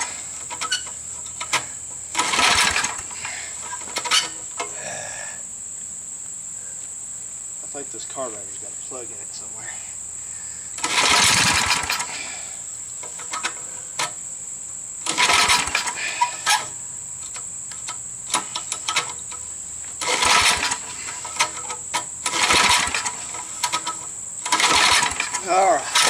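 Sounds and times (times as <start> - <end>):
mower engine cranking: 0.0 - 5.2, 10.6 - 26.0.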